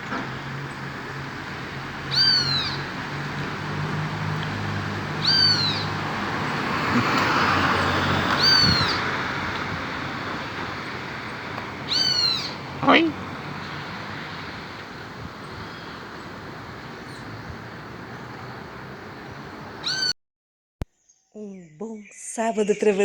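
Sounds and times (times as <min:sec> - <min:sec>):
toucan calling: 0:02.0 - 0:03.0, 0:05.1 - 0:07.1, 0:07.8 - 0:09.4, 0:10.5 - 0:13.9, 0:19.8 - 0:20.2.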